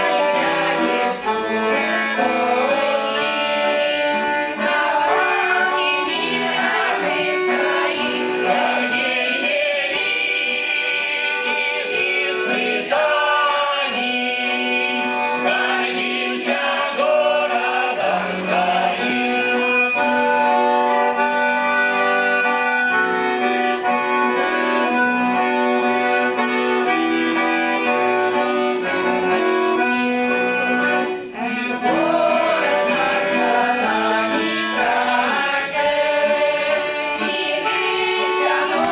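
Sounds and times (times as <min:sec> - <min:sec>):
singing: 0:00.0 - 0:20.1, 0:31.2 - 0:38.9
accordion ensemble playing folk song: 0:00.0 - 0:38.9.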